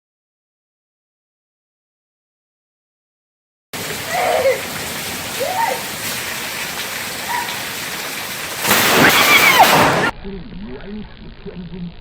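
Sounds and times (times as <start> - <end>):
heavy rain hissing: 3.8 - 10.1
loud crash of noise: 8.4 - 10.1.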